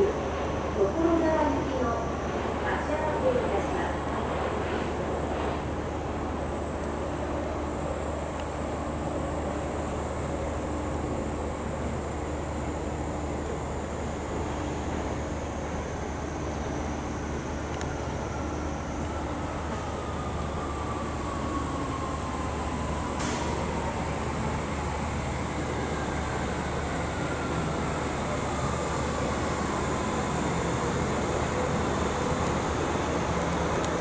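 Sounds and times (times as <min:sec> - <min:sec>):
electric train rumble: 0:00.0 - 0:34.0
train motor whine: 0:14.3 - 0:34.0.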